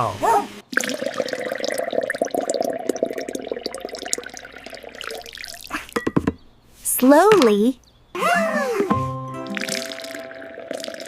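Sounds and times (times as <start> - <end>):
liquid pouring and gurgling: 0.7 - 6.2, 9.4 - 11.0.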